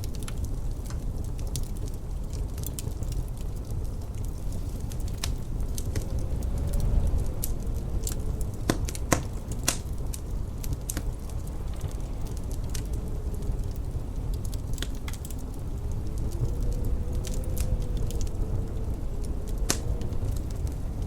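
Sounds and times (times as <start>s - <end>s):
faint howling wind: 0.0s - 21.0s
wood fire crackling and popping: 0.0s - 21.0s
low rumble: 2.7s - 21.0s.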